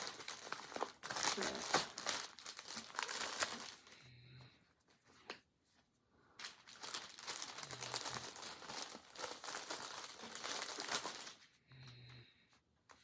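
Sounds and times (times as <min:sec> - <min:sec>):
packaging rustling and crackling: 0:00.0 - 0:04.0, 0:06.4 - 0:11.5.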